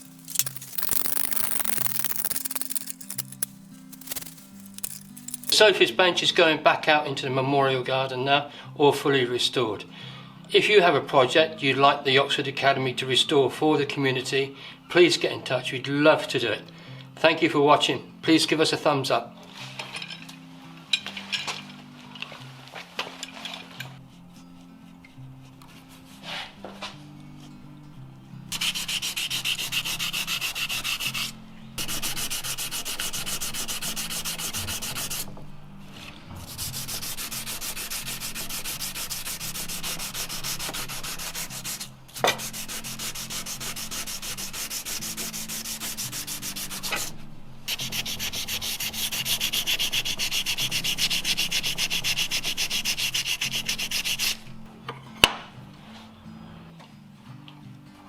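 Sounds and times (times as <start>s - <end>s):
wood being sanded: 0.0s - 5.5s, 28.6s - 35.2s, 36.5s - 47.1s, 47.7s - 54.4s.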